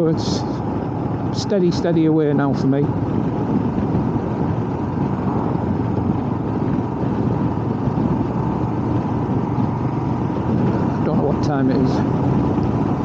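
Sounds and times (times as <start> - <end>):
motorcycle engine at road speed: 0.0 - 13.0
wind rushing past: 2.6 - 13.0.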